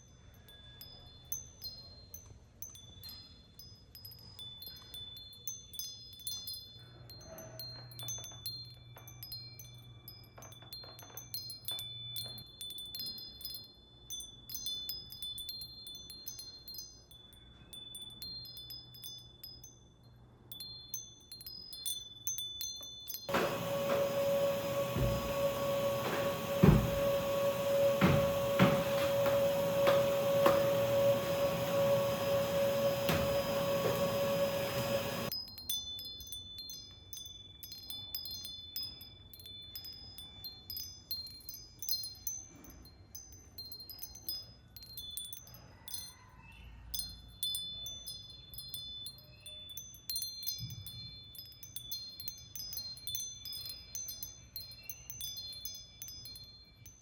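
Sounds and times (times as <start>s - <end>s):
high tinkling chime notes: 20.8s - 44.5s
knocks: 23.3s - 35.3s
vacuum cleaner humming: 23.3s - 35.3s.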